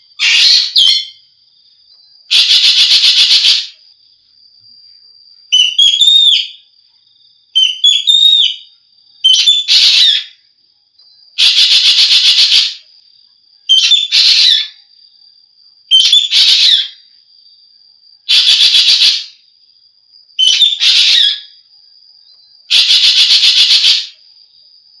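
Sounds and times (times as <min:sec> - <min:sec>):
bird harsh rasping calls: 0:00.2 - 0:01.1, 0:02.3 - 0:03.7, 0:09.3 - 0:10.3, 0:11.4 - 0:12.8, 0:13.7 - 0:14.7, 0:15.9 - 0:17.0, 0:18.3 - 0:19.3, 0:20.4 - 0:21.5, 0:22.7 - 0:24.1
bird whistled notes: 0:05.6 - 0:06.6.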